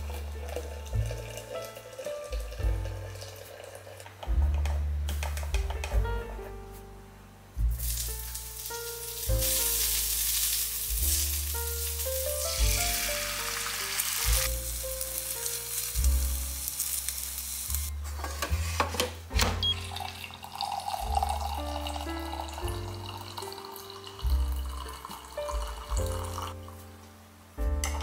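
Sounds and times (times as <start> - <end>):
coffee pouring into a mug: 0.0 - 4.2, 19.8 - 26.6
eggs sizzling in a pan: 0.0 - 4.4, 7.7 - 18.6, 19.8 - 26.8
background music with bass line: 4.2 - 20.0, 27.5 - 28.0.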